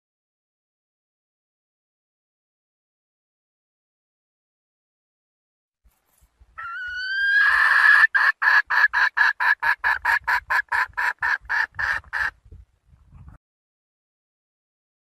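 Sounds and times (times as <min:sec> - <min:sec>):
junglefowl hen calling: 0:06.6 - 0:12.4.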